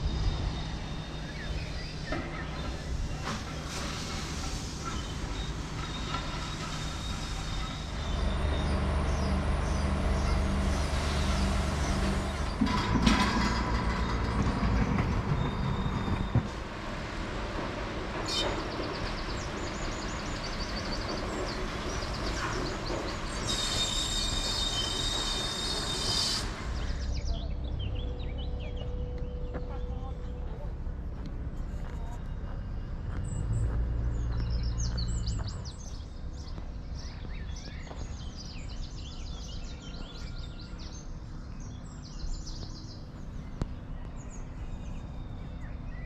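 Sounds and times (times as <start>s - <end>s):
high-pitched squeal: 0.0s - 16.4s, 22.2s - 30.5s
low mechanical rumble: 0.0s - 23.5s, 26.5s - 46.0s.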